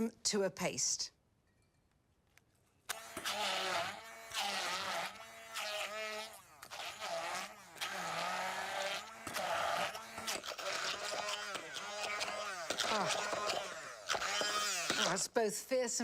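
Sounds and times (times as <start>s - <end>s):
food processor pulsing: 2.9s - 15.2s.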